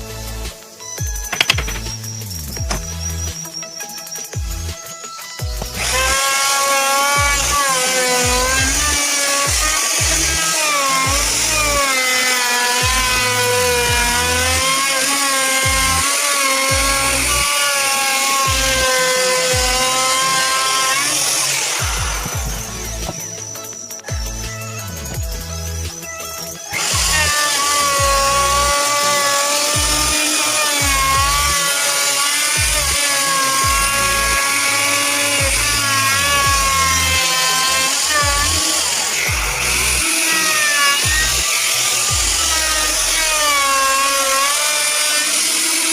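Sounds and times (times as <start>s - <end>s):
background music with sliding bass: 0.0s - 44.5s
power tool motor whine on wood: 0.0s - 45.9s.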